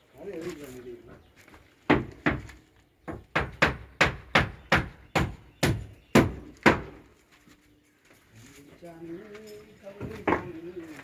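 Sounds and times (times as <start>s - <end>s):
hammer striking nails into wood: 1.9s - 7.0s.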